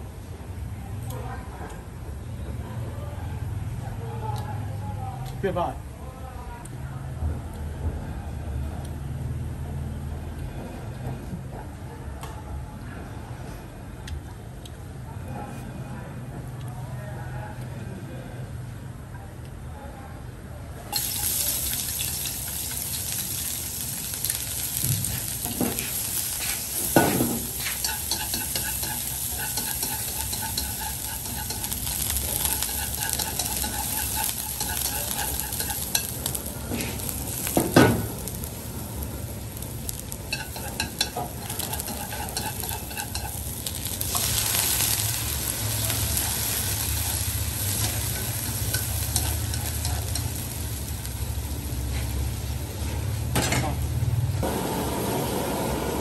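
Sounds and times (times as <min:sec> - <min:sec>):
aromatics sizzling in oil: 0:20.9 - 0:53.4
chopsticks scraping a pan: 0:25.1 - 0:37.2, 0:40.3 - 0:45.0, 0:45.9 - 0:50.4.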